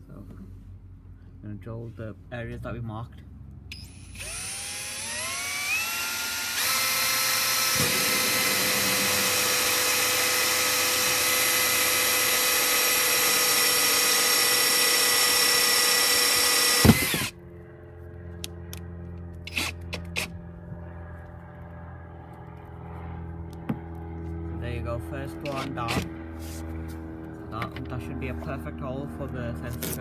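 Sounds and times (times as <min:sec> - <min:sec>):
drill click: 0:03.7 - 0:17.3
power drill whining: 0:03.7 - 0:17.4, 0:19.5 - 0:20.3.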